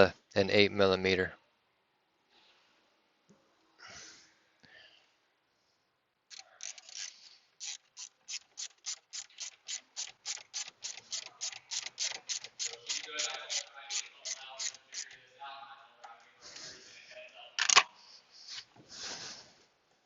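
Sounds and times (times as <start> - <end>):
hand ratchet clicking: 6.3 - 15.2.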